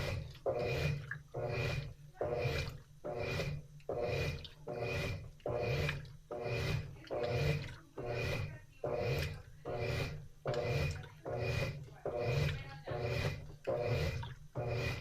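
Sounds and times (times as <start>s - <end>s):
washing machine motor whirring: 0.0s - 15.0s
water swishing in washing machine: 0.0s - 15.0s.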